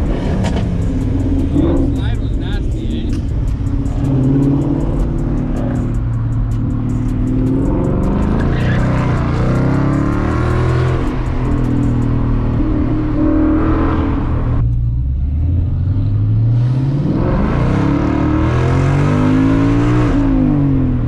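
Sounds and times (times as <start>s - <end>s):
car engine revving while driving: 0.0s - 21.0s.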